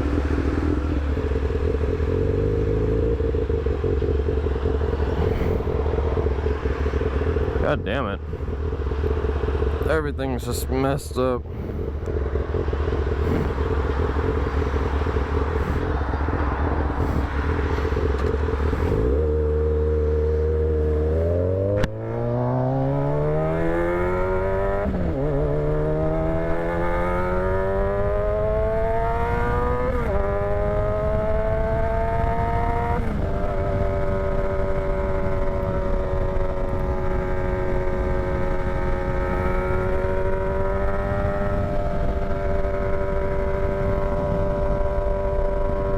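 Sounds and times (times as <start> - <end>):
motorcycle engine accelerating: 0.0 - 45.9
wind rushing: 4.9 - 7.2.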